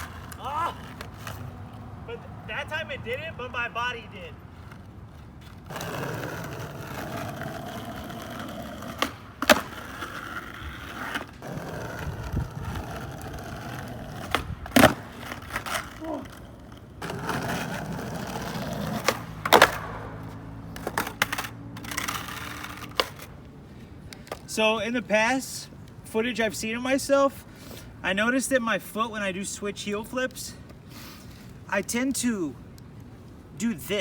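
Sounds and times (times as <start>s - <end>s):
skateboard wheels rolling on pavement: 0.0s - 34.0s
skateboard pops and landings: 5.7s - 16.4s, 17.0s - 23.3s.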